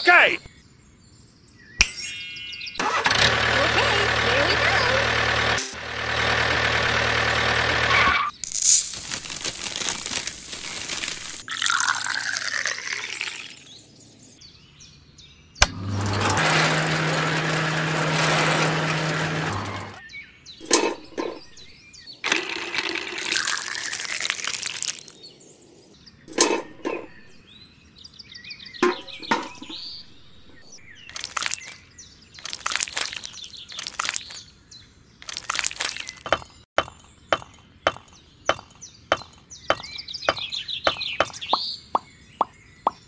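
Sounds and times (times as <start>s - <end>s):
tiny bricks clicking into place: 8.3s - 13.0s, 22.3s - 25.2s, 31.1s - 31.8s, 32.4s - 34.4s, 35.2s - 39.9s.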